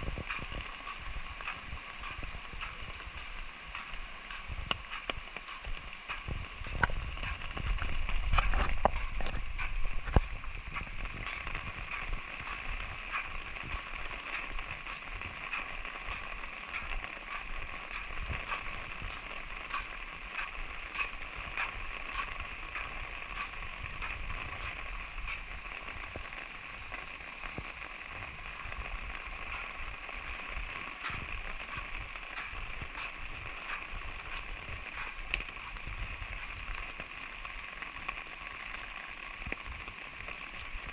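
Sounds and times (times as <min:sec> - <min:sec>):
low rumble: 0:00.0 - 0:26.4
light rain falling: 0:00.0 - 0:40.9.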